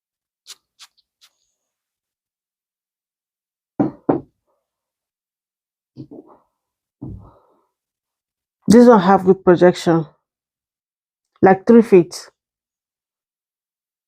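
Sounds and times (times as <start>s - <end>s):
knocks of glass bottle and cap: 3.8s - 4.4s.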